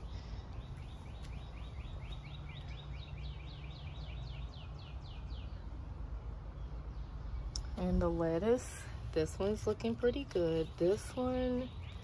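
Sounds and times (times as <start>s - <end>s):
songbird whistling: 0.1s - 5.6s.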